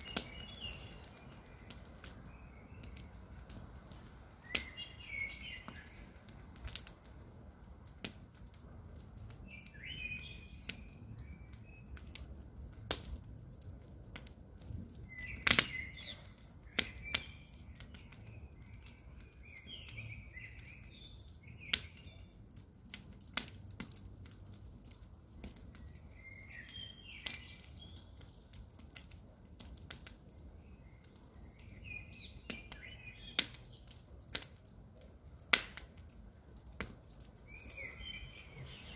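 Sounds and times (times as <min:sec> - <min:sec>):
birds chirping: 0:00.0 - 0:06.4, 0:09.5 - 0:12.3, 0:15.0 - 0:22.4, 0:25.8 - 0:28.5, 0:30.5 - 0:34.0, 0:37.4 - 0:38.9
wood fire crackling and popping: 0:00.0 - 0:38.9.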